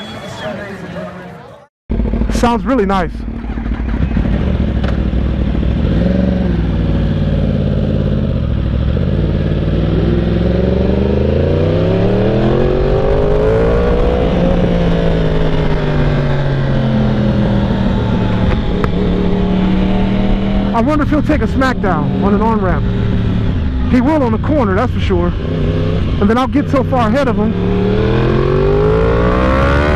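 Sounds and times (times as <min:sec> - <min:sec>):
motorcycle engine revving: 0:01.9 - 0:29.9.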